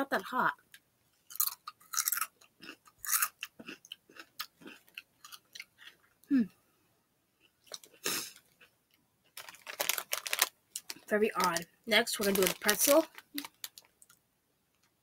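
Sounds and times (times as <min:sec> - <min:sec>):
person chewing crunchy chips: 0:01.2 - 0:06.3, 0:07.4 - 0:11.6, 0:12.2 - 0:14.2.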